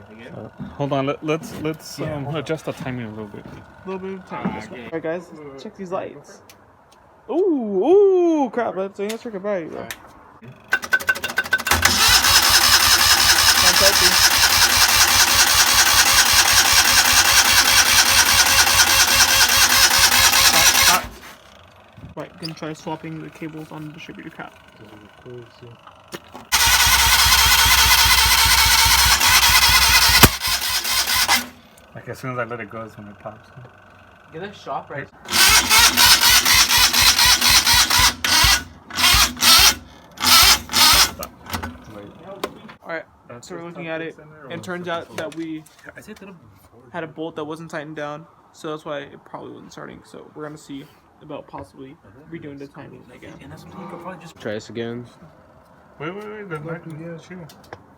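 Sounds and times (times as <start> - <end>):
engine cranking on starter: 10.5 - 25.4, 26.3 - 32.0, 35.2 - 42.6.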